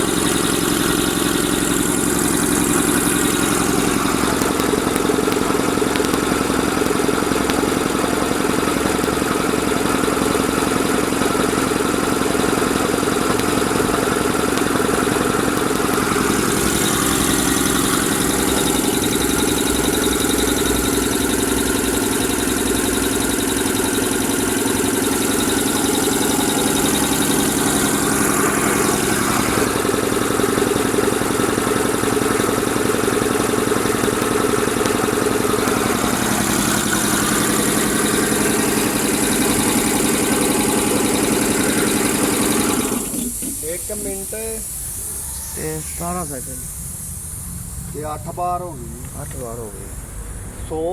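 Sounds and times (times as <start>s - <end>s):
air compressor running: 0.0s - 50.9s
air hiss: 25.0s - 50.9s.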